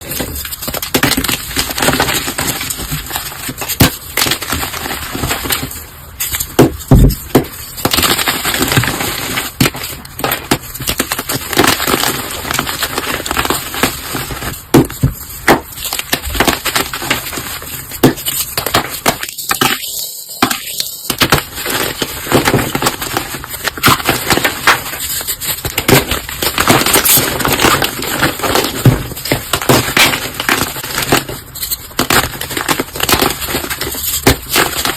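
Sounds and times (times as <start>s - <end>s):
objects being crushed: 0.0s - 34.9s.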